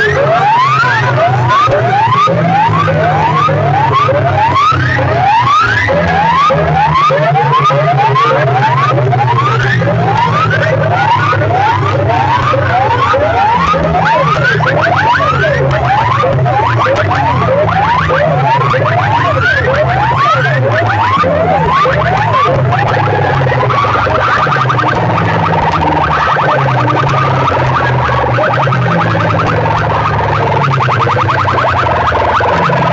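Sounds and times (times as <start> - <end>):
heavy steady bass: 0.0 - 32.9
siren-like whoops in dance track: 0.0 - 32.9.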